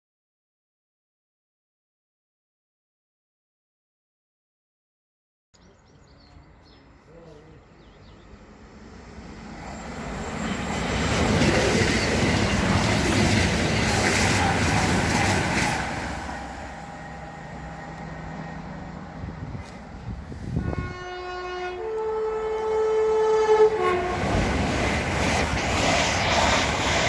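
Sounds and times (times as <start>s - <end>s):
train passing at speed: 6.4s - 27.0s
train horn: 20.4s - 24.6s.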